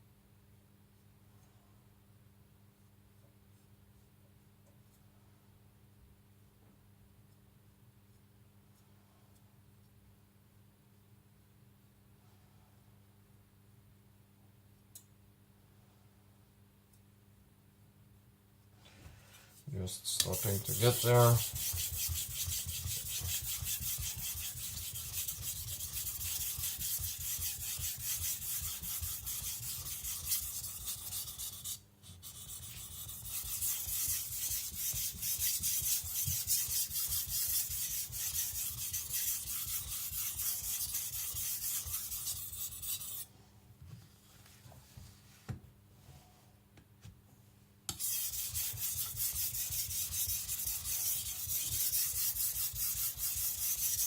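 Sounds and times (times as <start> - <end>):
knife scraping on whetstone: 20.2 - 31.2, 47.9 - 54.0.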